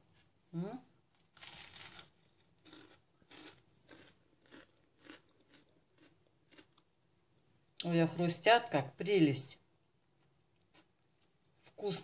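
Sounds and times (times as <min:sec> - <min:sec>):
chewing crunches: 0:01.4 - 0:06.8.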